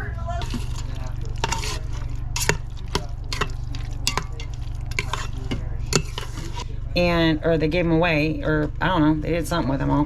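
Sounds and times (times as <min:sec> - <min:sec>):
low hum: 0:00.0 - 0:10.0
stick scraping and knocking pot: 0:00.4 - 0:06.8.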